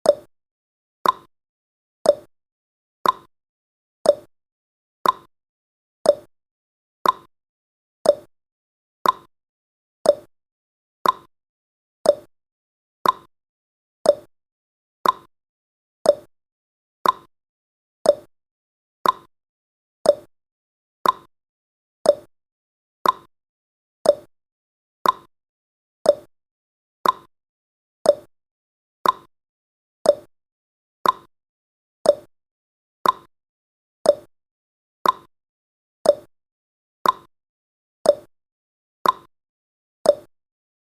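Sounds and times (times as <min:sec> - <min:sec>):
clock ticking: 0:03.0 - 0:03.3, 0:05.0 - 0:05.3, 0:07.0 - 0:07.3, 0:09.0 - 0:09.3, 0:11.0 - 0:11.3, 0:13.0 - 0:13.3, 0:15.0 - 0:15.3, 0:16.1 - 0:16.3, 0:17.0 - 0:17.3, 0:18.1 - 0:18.3, 0:19.0 - 0:19.3, 0:21.0 - 0:21.3, 0:22.1 - 0:22.3, 0:23.0 - 0:23.3, 0:24.0 - 0:24.3, 0:25.0 - 0:25.3, 0:26.1 - 0:26.3, 0:27.0 - 0:27.3, 0:28.1 - 0:28.3, 0:29.0 - 0:29.3, 0:30.1 - 0:30.3, 0:31.0 - 0:31.3, 0:32.1 - 0:32.3, 0:33.0 - 0:33.3, 0:34.1 - 0:34.3, 0:35.0 - 0:35.3, 0:36.1 - 0:36.3, 0:37.0 - 0:37.3, 0:38.1 - 0:38.3, 0:39.0 - 0:39.3, 0:40.1 - 0:40.3.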